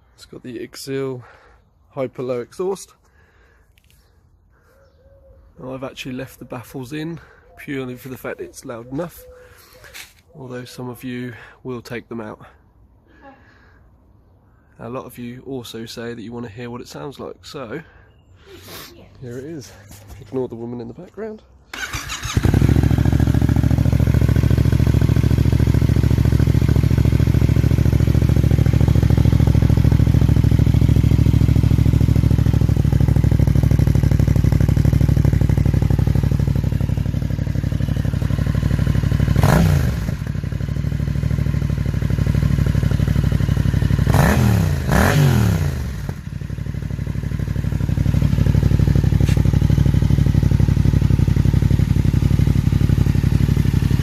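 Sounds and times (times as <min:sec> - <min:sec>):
motorcycle engine idling and revving: 0:05.9 - 0:11.6, 0:19.3 - 0:54.0.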